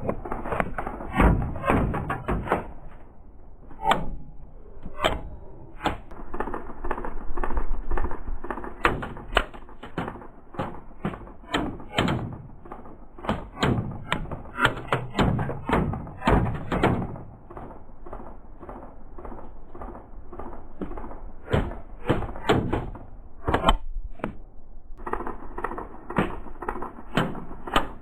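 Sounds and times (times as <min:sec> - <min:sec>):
sharp knocks and thuds: 0:00.0 - 0:03.0, 0:08.5 - 0:24.4, 0:26.1 - 0:28.0.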